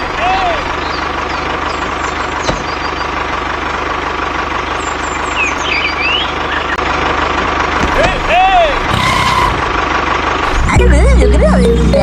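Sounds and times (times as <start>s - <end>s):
birds chirping: 0.0s - 6.9s
small tractor motor running: 0.0s - 12.0s.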